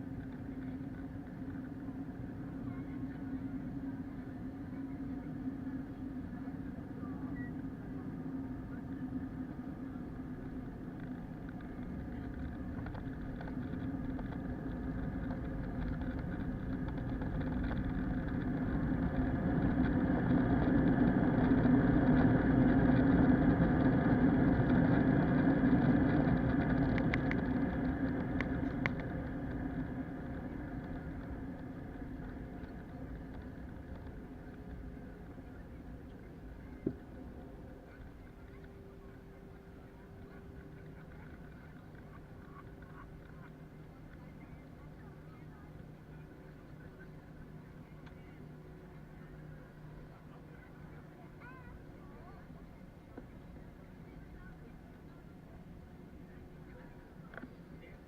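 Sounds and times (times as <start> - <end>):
airplane engines droning: 0.0 - 58.0.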